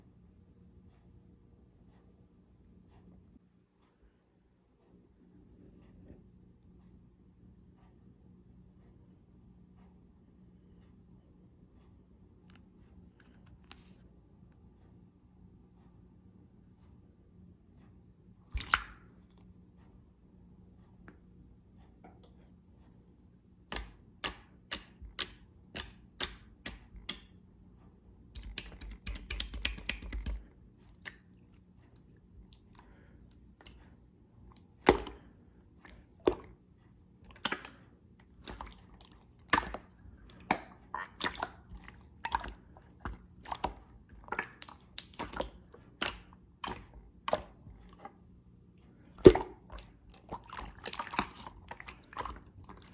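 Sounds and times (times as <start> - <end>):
slime popping and clicking: 18.6 - 19.0, 28.4 - 30.4.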